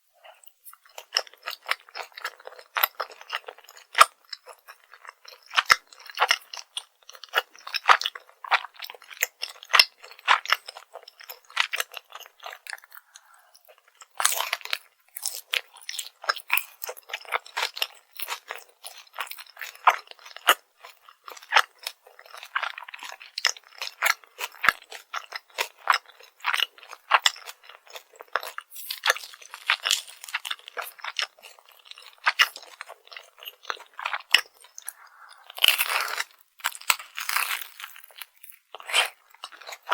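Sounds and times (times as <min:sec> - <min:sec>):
crunching and chewing crispy food: 0:00.2 - 0:39.9.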